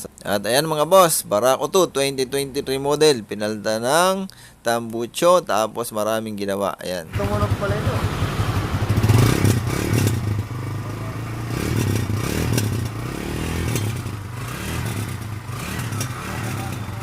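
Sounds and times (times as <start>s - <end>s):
motorcycle engine idling: 7.1s - 17.0s.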